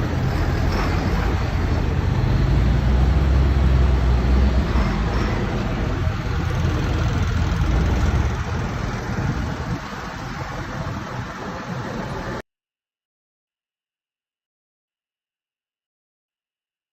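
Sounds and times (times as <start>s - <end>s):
road noise: 0.0s - 12.4s
tractor engine running: 0.0s - 12.4s.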